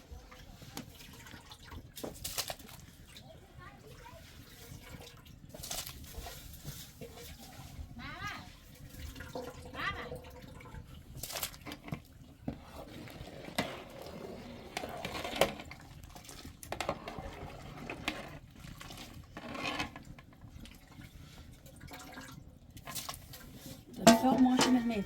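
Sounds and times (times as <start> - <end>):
water splashing: 21.7 - 25.0
dishes and utensils clinking: 24.0 - 25.0.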